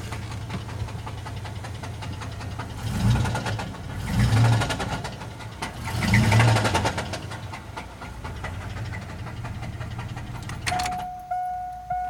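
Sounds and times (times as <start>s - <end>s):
engine idling with knocking: 0.0s - 12.0s
dashboard chime: 10.7s - 12.0s
throttle blip: 10.7s - 12.0s.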